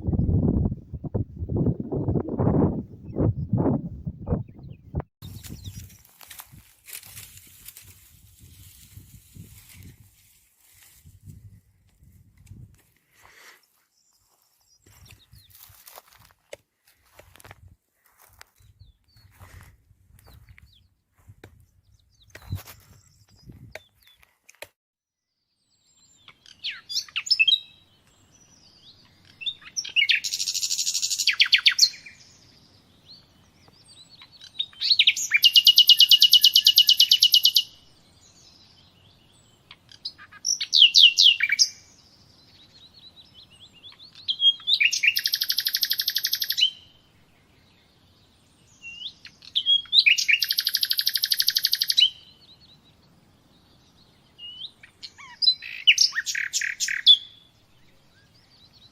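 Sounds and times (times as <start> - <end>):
songbird chirps and trill: 13.4 - 16.3, 25.2 - 58.9.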